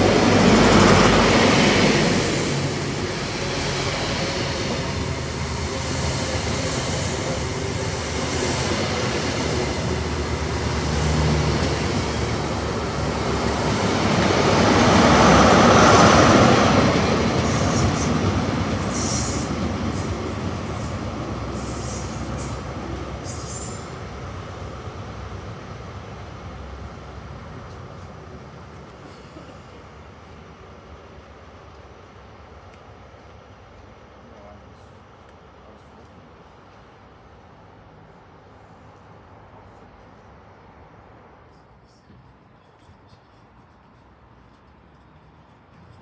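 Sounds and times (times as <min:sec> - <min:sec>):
train rushing past: 0:00.0 - 0:31.6.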